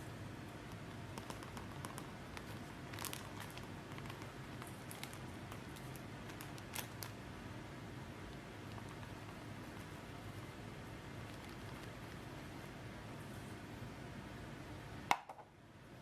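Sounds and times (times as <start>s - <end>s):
steady low hum: 0.0s - 16.0s
faint clicks and crinkling: 0.5s - 7.2s, 8.2s - 12.7s.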